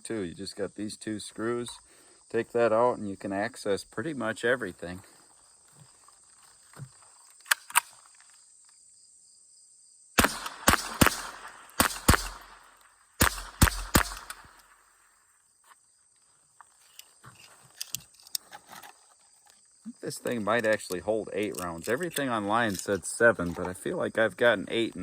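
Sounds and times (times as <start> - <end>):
rifle metallic clicks: 7.3 - 8.0, 10.2 - 14.8, 20.6 - 23.7
rifle shots with echo: 10.2 - 15.1.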